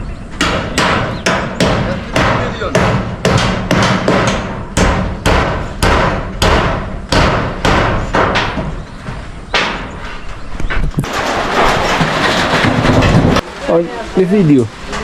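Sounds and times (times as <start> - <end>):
hammer on corrugated iron: 0.4 - 10.0.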